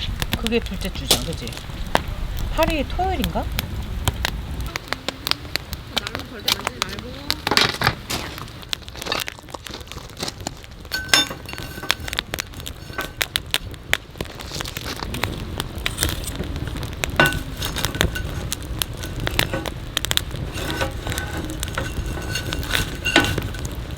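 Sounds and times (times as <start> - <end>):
wood fire crackling and popping: 0.0 - 23.9
ringing clinks: 11.0 - 12.2, 20.5 - 23.7.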